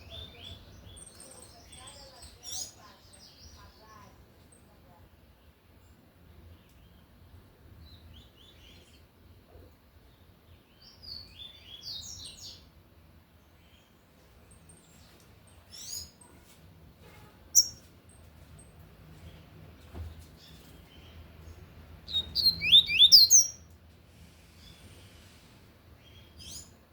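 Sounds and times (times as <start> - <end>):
bird chirping song: 0.0 - 4.8, 7.8 - 12.7, 13.3 - 16.4, 17.6 - 19.5, 20.3 - 23.7, 26.0 - 26.9.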